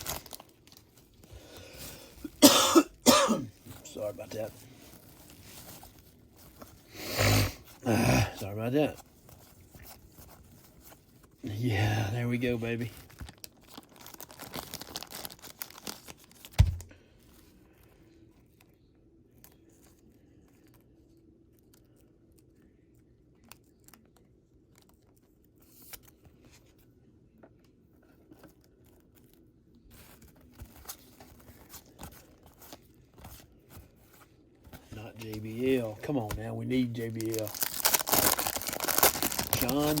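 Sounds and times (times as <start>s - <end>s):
wrapper tearing and crinkling: 0.0s - 2.0s, 12.8s - 16.9s, 35.2s - 40.0s.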